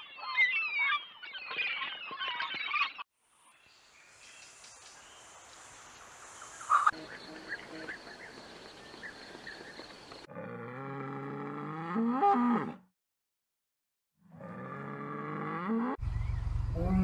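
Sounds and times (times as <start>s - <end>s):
cow mooing: 10.3s - 12.9s, 14.2s - 16.0s.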